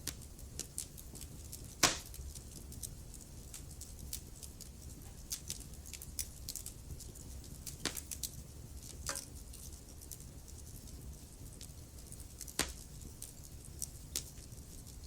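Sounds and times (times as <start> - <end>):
loud fire pops: 0.0 - 2.9, 7.7 - 8.3, 12.3 - 13.3
low fire rumble: 0.0 - 15.0
wood fire crackling: 0.0 - 15.0.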